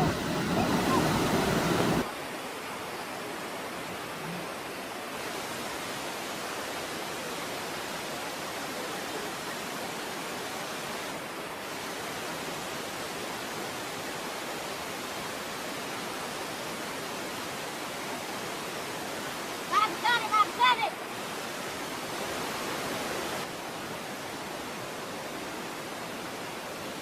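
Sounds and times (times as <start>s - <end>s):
steady rushing noise: 0.0s - 2.1s.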